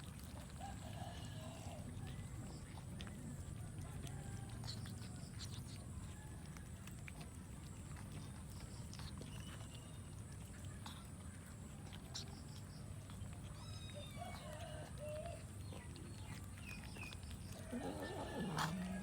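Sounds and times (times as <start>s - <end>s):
cats mewing: 13.0s - 15.4s, 16.0s - 19.0s.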